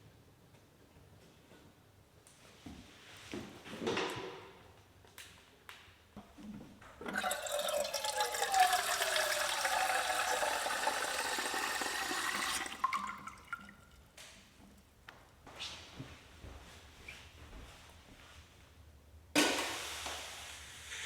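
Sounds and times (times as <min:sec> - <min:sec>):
water running and splashing: 0:07.1 - 0:14.0.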